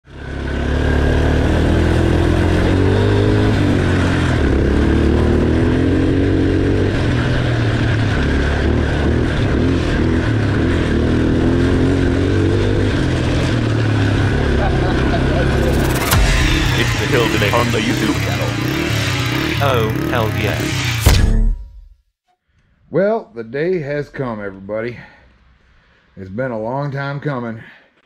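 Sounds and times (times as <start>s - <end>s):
quad engine revving: 0.1s - 21.1s.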